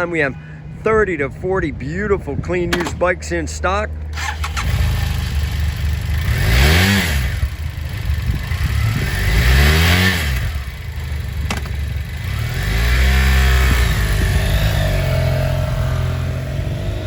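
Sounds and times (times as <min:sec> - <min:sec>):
motorcycle engine idling and revving: 0:04.0 - 0:17.0.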